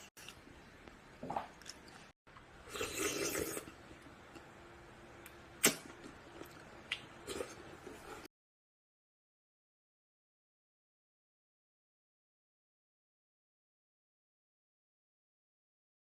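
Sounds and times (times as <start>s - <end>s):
eating noodle soup: 1.3s - 4.6s, 5.2s - 8.3s.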